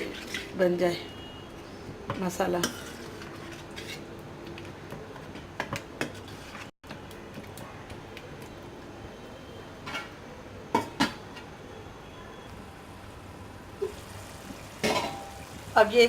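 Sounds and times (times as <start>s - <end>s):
metal utensil clinking on pot: 14.8s - 15.4s.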